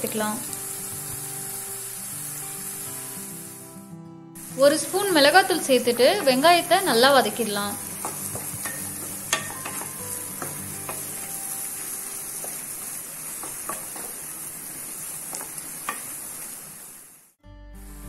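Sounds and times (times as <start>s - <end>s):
onions sizzling in oil: 0.0s - 17.4s
spatula tapping and scraping pan: 6.0s - 6.5s, 7.8s - 14.3s, 15.3s - 16.2s.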